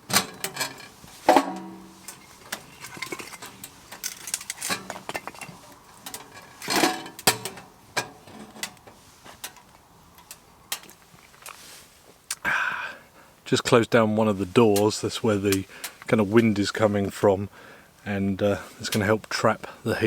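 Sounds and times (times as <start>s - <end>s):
metal cookware clinking: 0.1s - 8.8s.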